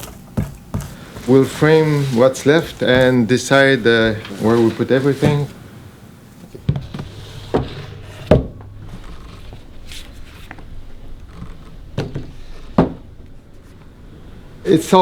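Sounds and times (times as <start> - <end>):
low hum: 5.6 - 14.9
knocks and thuds: 6.6 - 9.6, 11.3 - 13.4.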